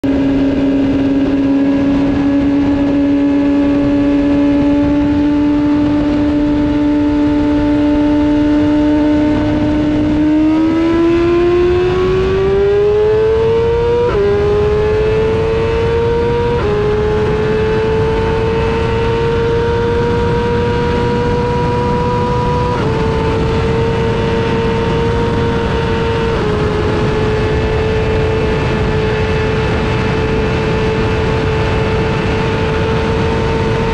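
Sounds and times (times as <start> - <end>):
heavy wind rush: 0.0 - 33.9
motorcycle engine accelerating: 0.0 - 33.9.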